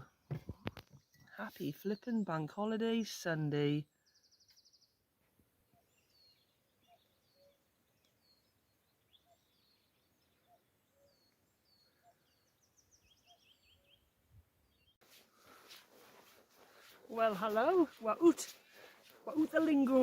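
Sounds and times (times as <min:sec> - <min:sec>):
bird chirps and trills: 0:05.7 - 0:14.1.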